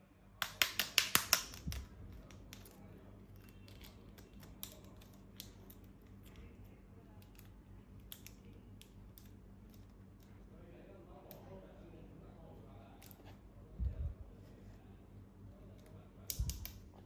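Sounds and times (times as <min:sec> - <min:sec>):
packaging clicks and taps: 0:00.4 - 0:02.8.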